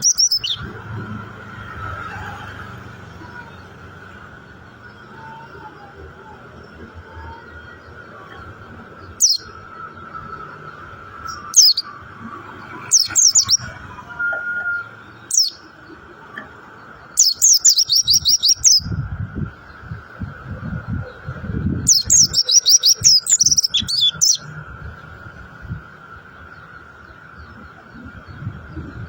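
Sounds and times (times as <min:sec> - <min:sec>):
bird chirping: 0:00.0 - 0:00.8, 0:06.6 - 0:19.0, 0:21.1 - 0:25.1.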